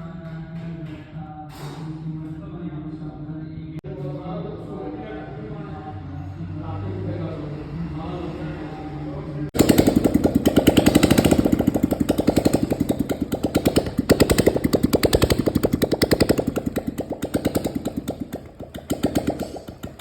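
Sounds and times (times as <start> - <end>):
motorcycle engine running: 9.6 - 20.0.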